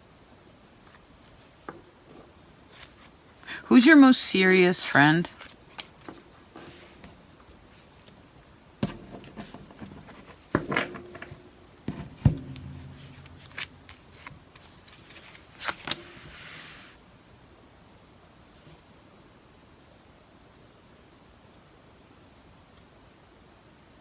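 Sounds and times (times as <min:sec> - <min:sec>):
cards tapping and knocking: 0:08.8 - 0:14.3.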